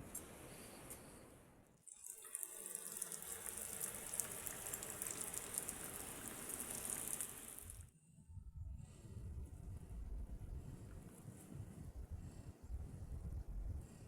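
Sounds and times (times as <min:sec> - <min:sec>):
falling water splashing: 0:02.0 - 0:07.8.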